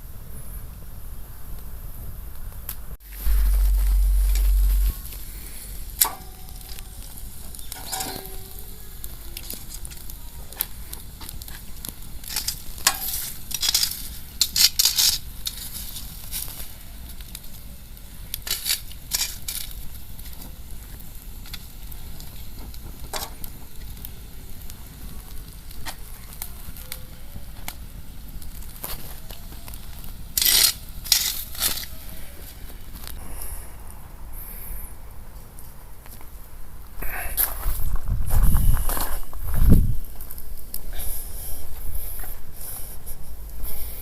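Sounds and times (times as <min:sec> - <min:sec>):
bonfire crackling and hissing: 0:00.0 - 0:44.0
fire popping: 0:00.6 - 0:44.0
low rumble: 0:03.0 - 0:09.0.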